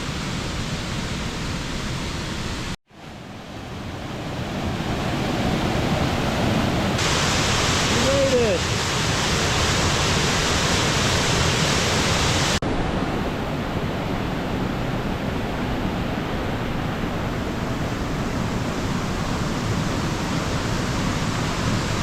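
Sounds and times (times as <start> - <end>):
waterfall rushing: 4.9 - 22.0.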